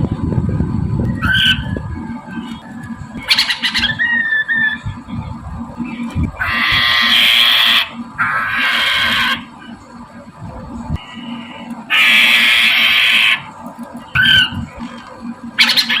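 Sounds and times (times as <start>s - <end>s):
bird whistled notes: 1.0s - 5.0s, 14.1s - 14.6s
bird harsh chattering: 1.2s - 1.8s, 3.2s - 4.9s, 6.4s - 9.5s, 11.9s - 13.5s, 14.1s - 14.7s, 15.6s - 16.0s.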